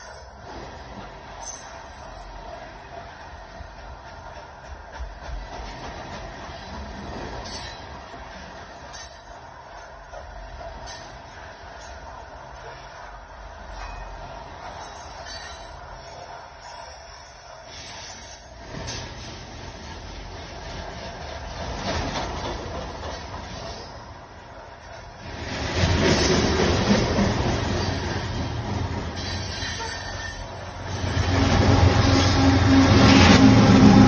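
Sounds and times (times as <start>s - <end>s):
train wheels squealing on rails: 0.0s - 2.7s, 3.4s - 34.0s
locomotive engine drone: 27.3s - 34.0s.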